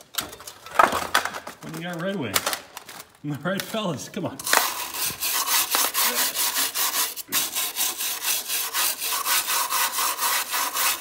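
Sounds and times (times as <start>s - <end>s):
hand tool scraping metal: 4.4s - 11.0s.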